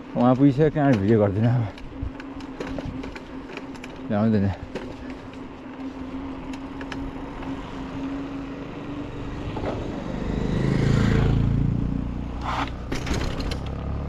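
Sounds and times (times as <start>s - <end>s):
vehicle engine passing: 7.2s - 12.9s.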